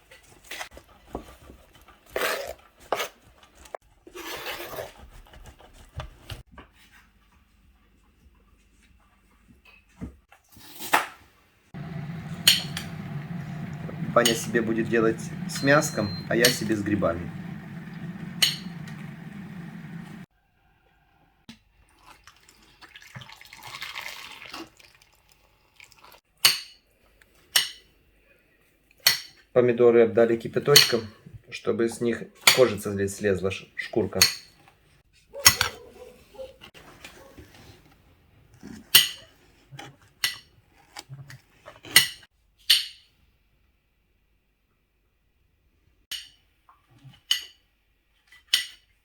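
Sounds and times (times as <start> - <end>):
water pouring: 21.9 - 26.2.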